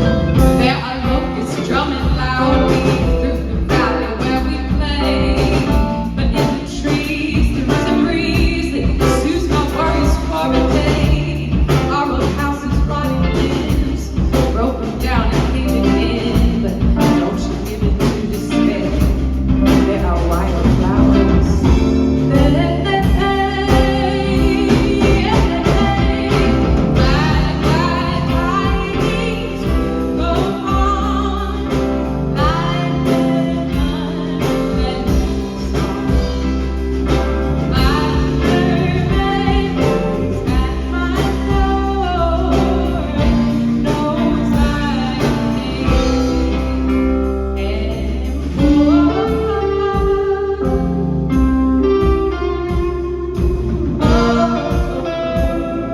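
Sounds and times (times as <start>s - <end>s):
gliding lead melody: 0.0s - 11.3s
live band music: 0.0s - 55.9s.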